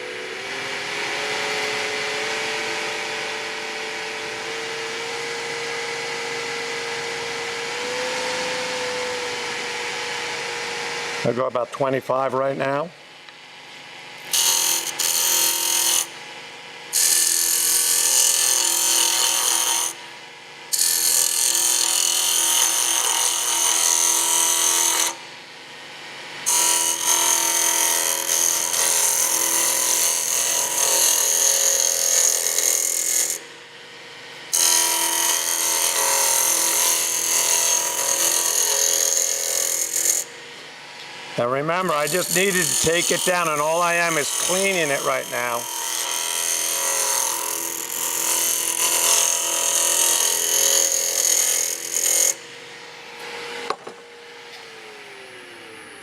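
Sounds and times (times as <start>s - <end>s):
lathe motor hum: 0.1s - 11.3s
chisel cutting wood on lathe: 14.3s - 16.2s, 16.9s - 20.0s, 20.7s - 25.2s, 26.4s - 33.4s, 34.5s - 40.3s, 41.4s - 52.4s.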